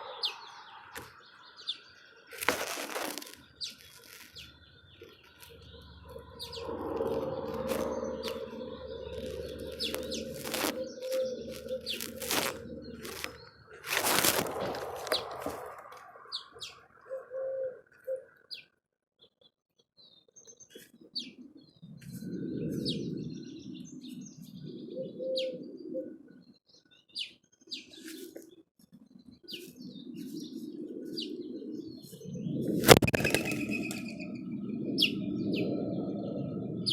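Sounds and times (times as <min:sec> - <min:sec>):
small birds chirping: 0:00.0 - 0:36.9
bird wing flurry: 0:02.4 - 0:04.5, 0:06.4 - 0:16.1, 0:32.1 - 0:34.2.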